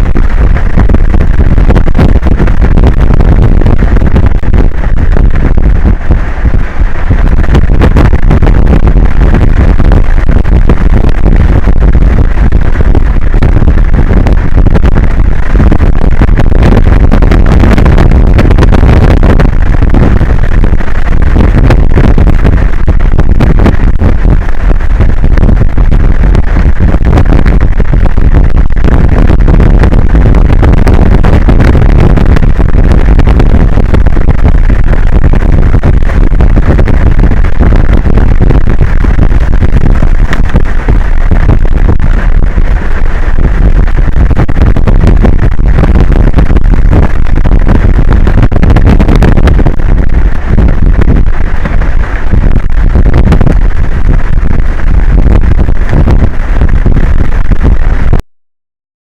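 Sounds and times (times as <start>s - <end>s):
wind buffeting microphone: 0.0s - 58.2s.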